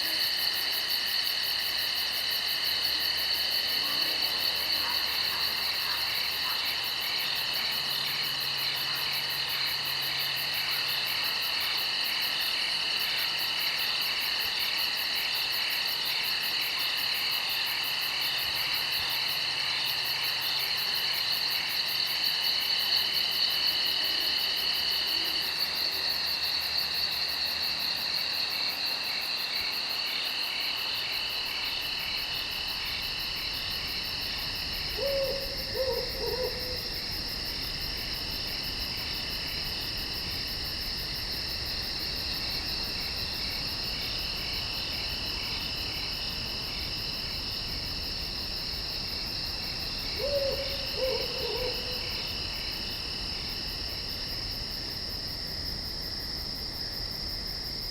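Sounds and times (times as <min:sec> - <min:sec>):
insects trilling: 0:00.0 - 0:57.9
owl hooting: 0:35.0 - 0:37.0, 0:50.2 - 0:52.1.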